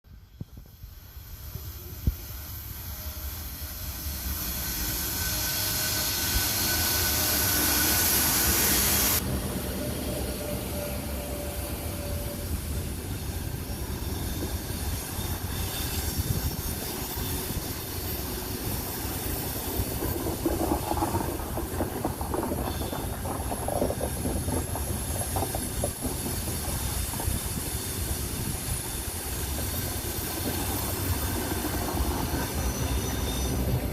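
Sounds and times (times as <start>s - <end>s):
train wheels squealing: 0.1s - 33.9s
locomotive hiss: 0.2s - 33.9s
train coaches rumbling past: 0.2s - 33.9s
train wheel clicks: 19.2s - 32.3s.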